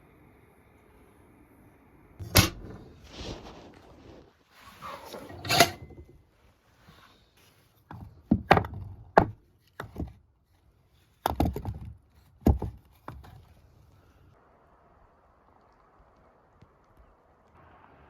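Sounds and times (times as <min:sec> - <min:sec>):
knocks and thuds on wood: 0:07.9 - 0:10.2, 0:11.2 - 0:13.3.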